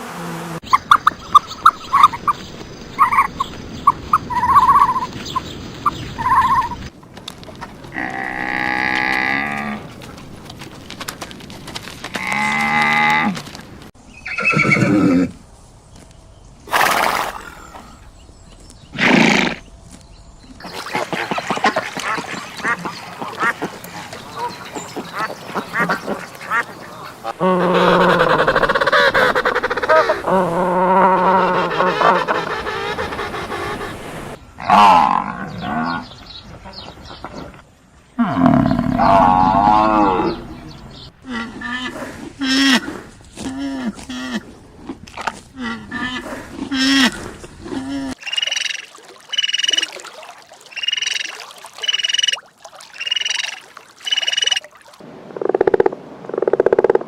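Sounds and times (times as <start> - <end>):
horse neighing: 14.2 - 15.4
farm animal calls: 25.2 - 37.5
high chirps: 48.2 - 49.9, 50.8 - 52.4, 53.0 - 54.6.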